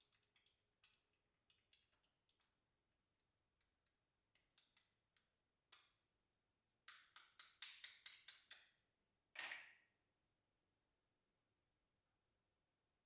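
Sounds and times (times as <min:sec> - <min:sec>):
slime squishing with clicks and pops: 0:00.0 - 0:02.8.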